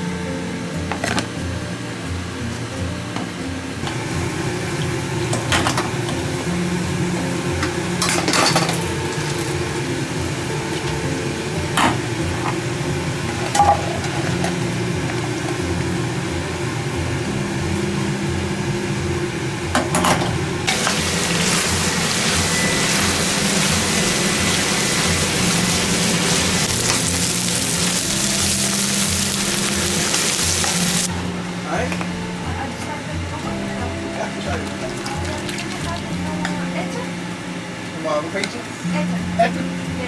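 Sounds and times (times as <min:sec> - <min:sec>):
metal utensils and pans clinking: 0:05.2 - 0:06.3, 0:07.5 - 0:09.7, 0:10.6 - 0:12.6, 0:13.2 - 0:15.6, 0:19.7 - 0:31.1
loud hiss: 0:20.7 - 0:31.1.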